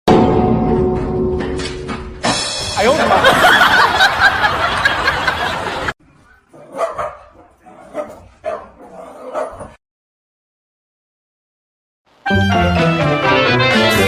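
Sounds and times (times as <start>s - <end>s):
dog barking: 6.5s - 9.8s.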